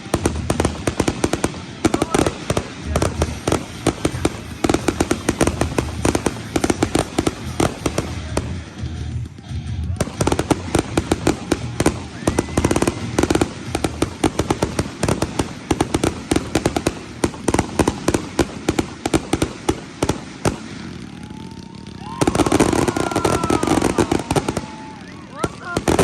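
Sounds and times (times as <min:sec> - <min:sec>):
fireworks bangs and crackles: 0:00.0 - 0:26.0
crowd cheering and whistling: 0:02.0 - 0:08.8, 0:10.0 - 0:17.9, 0:21.0 - 0:26.0.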